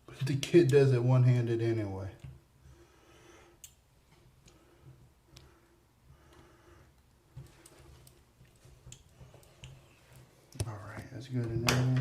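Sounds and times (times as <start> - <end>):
faint clicks and taps: 2.1 - 2.4, 3.6 - 12.0.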